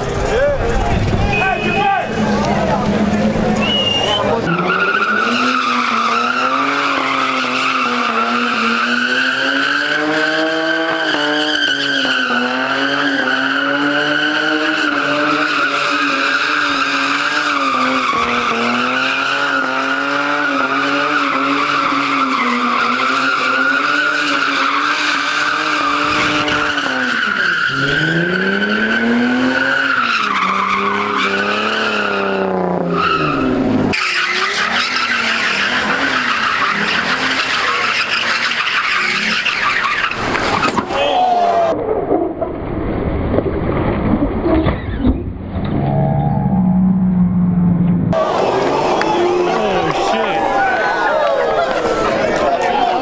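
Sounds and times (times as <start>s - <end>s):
car engine at high revs: 0.0s - 40.9s
tyres screeching: 0.0s - 41.7s, 48.2s - 53.0s.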